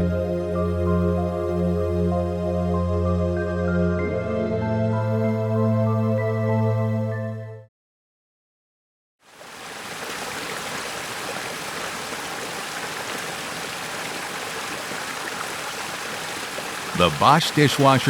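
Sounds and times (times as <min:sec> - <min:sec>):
background music: 0:00.0 - 0:07.7.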